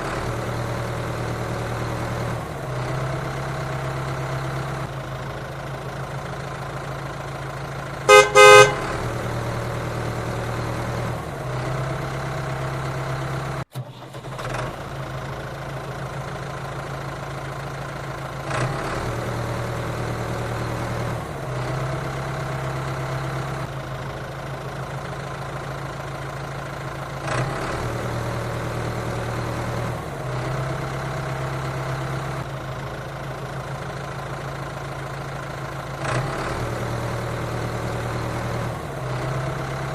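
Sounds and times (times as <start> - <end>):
engine running: 0.0 - 39.9
vehicle horn honking: 8.1 - 9.0.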